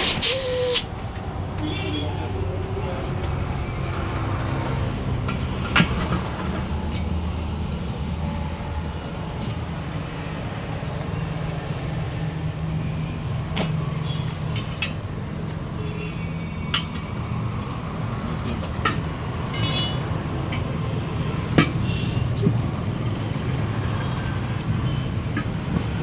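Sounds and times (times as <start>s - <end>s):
low mechanical hum: 0.0s - 1.4s.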